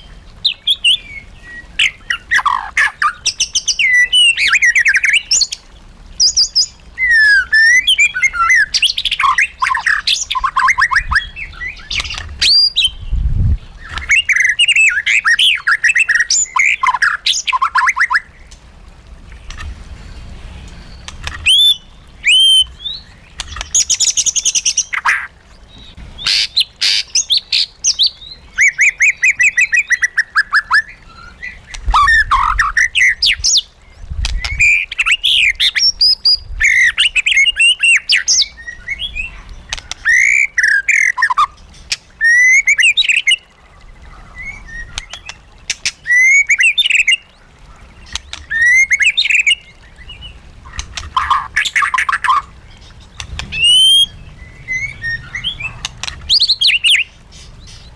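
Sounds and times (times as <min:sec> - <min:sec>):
bird singing whistled trills: 0:06.2 - 0:13.2, 0:20.8 - 0:33.7, 0:34.4 - 0:41.6, 0:46.0 - 0:47.2, 0:48.4 - 0:50.4, 0:53.1 - 0:57.1.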